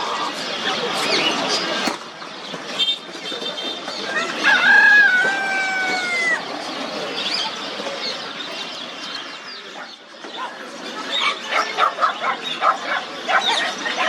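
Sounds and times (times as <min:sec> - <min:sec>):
rooster crowing: 0:04.4 - 0:06.4.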